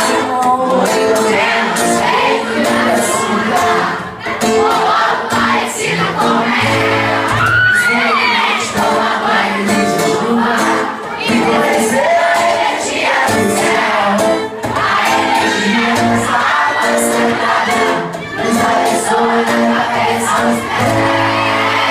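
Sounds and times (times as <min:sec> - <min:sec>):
audience singing along: 0:00.0 - 0:21.9
crowd shouting and cheering: 0:00.0 - 0:21.9
live band playing: 0:00.0 - 0:21.9
shrill scream: 0:07.3 - 0:08.7.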